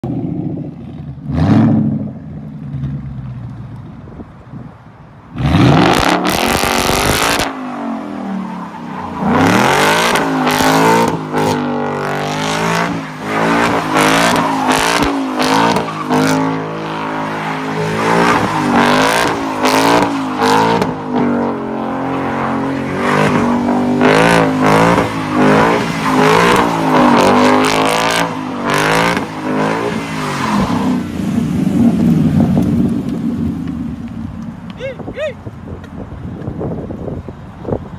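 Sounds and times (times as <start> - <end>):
tires screeching on pavement: 0.0 - 37.9
car engine revving hard: 5.4 - 8.2, 9.2 - 32.3.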